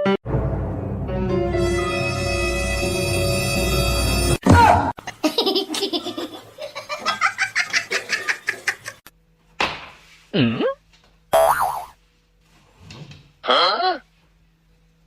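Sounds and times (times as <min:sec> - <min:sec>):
hearty laughter: 0:05.0 - 0:09.1.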